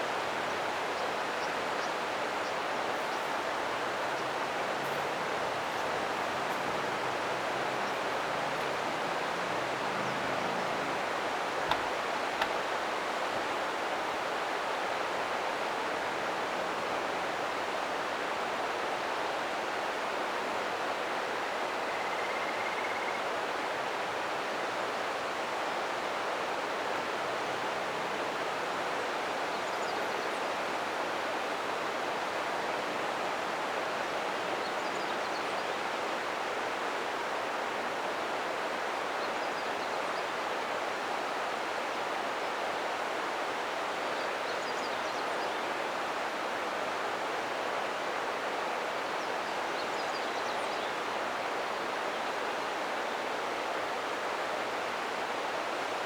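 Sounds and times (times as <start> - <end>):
river flowing over rocks: 0.1 - 19.1.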